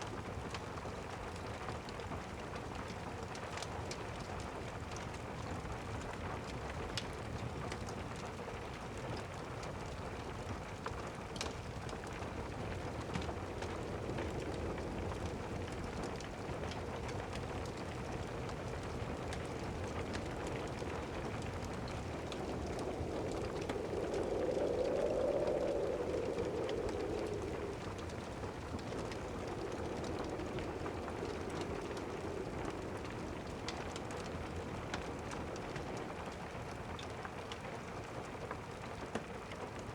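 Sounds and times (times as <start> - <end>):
steady rain: 0.0 - 39.9
fireplace crackling: 17.7 - 35.6
distant thunder rumble: 19.2 - 35.1.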